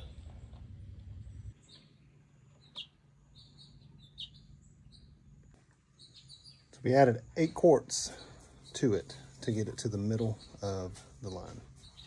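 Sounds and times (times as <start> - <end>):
low rumble: 0.0 - 1.6
faint birds chirping: 0.0 - 12.0.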